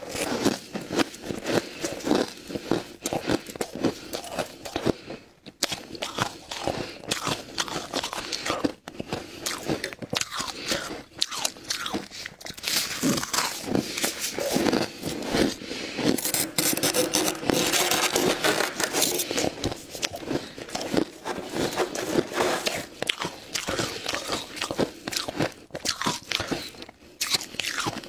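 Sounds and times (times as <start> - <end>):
ice being scraped: 12.7 - 24.4.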